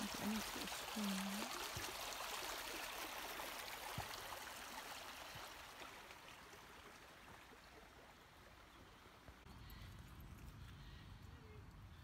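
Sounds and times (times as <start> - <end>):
stream water rushing: 0.0 - 9.3.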